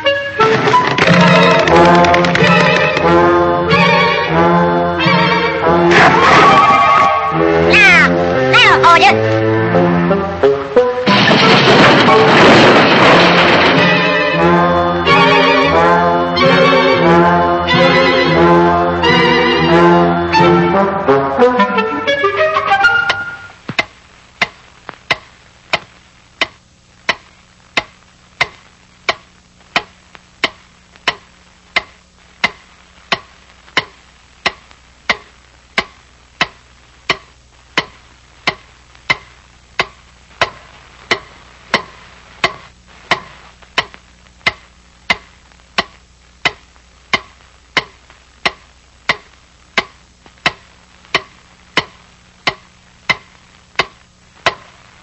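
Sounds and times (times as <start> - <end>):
faint low hum: 11.8 - 55.0.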